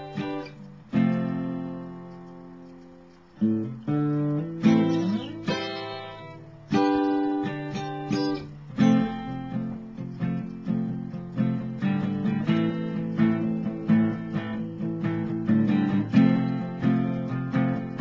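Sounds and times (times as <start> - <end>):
acoustic guitar strummed chords: 0.0 - 18.0.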